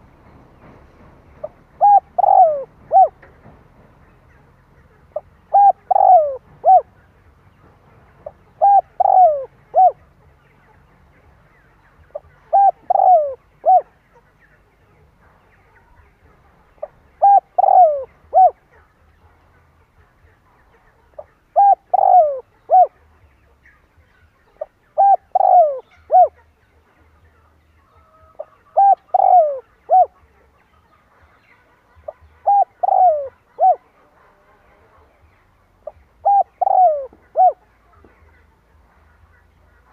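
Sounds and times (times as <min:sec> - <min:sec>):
dove cooing: 0:01.4 - 0:03.5, 0:04.6 - 0:07.0, 0:08.2 - 0:10.2, 0:12.1 - 0:14.0, 0:16.8 - 0:18.9, 0:20.8 - 0:23.1, 0:24.6 - 0:26.5, 0:28.0 - 0:30.5, 0:32.0 - 0:38.1.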